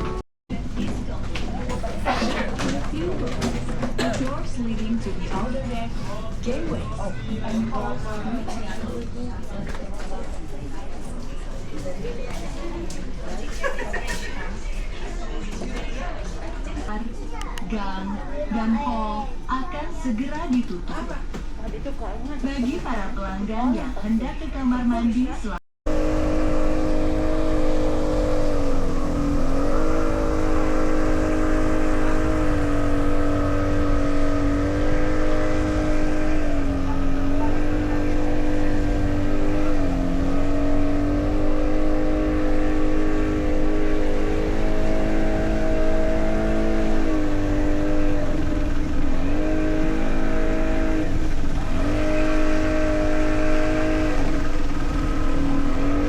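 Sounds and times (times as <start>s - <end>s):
engine droning: 0.0s - 14.4s, 25.9s - 56.0s.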